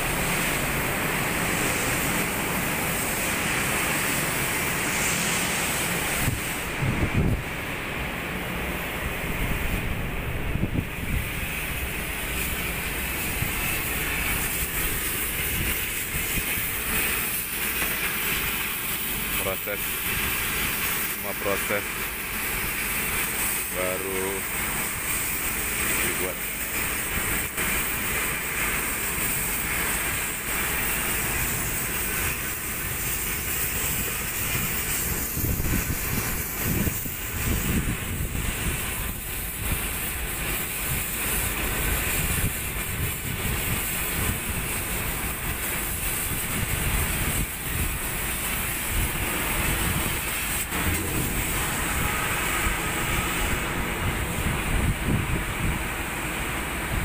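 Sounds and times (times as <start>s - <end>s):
loud hissing rush: 0.0s - 57.0s
low rumble: 50.7s - 55.6s.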